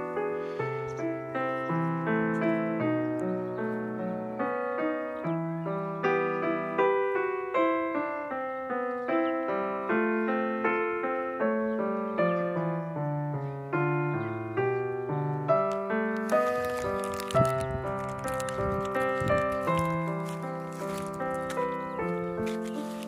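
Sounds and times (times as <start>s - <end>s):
piano music: 0.0s - 23.0s
scratchy noise: 16.2s - 23.0s.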